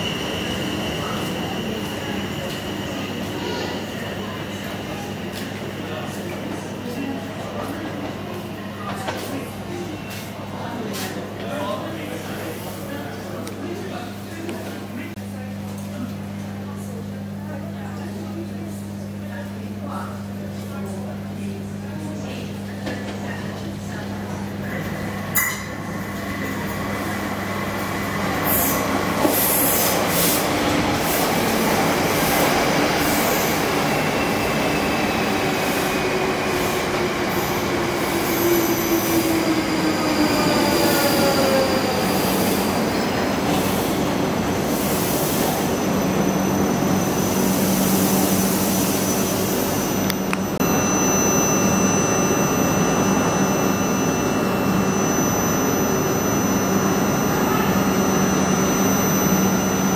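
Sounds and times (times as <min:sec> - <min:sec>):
train whine falling in pitch: 0:46.3 - 0:59.9
electric hum and whine: 0:49.0 - 0:59.9.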